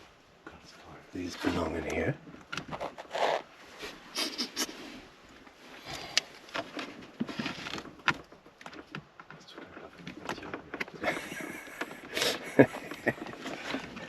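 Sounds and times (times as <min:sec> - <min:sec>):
rustling: 0:01.2 - 0:14.0
car parts clicking and tapping: 0:07.6 - 0:14.0.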